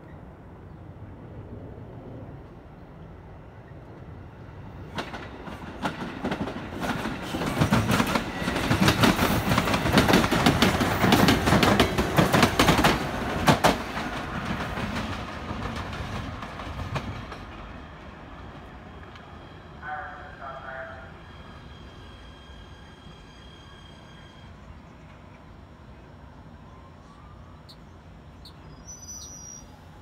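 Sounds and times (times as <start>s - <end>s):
train wheels clicking over rails: 4.9s - 18.0s.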